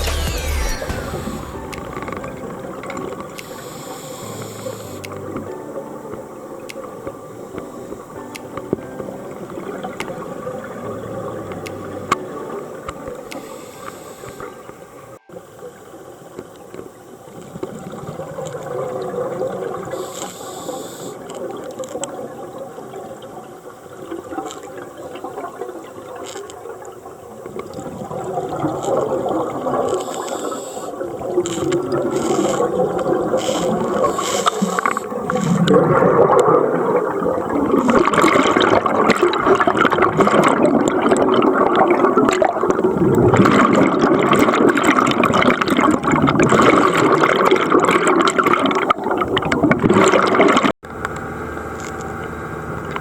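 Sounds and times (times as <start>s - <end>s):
underwater bubbling and gurgling: 1.4s - 53.0s
short hissing bursts: 3.4s - 5.1s, 13.3s - 14.6s, 20.0s - 21.2s, 30.0s - 31.0s, 33.4s - 35.6s.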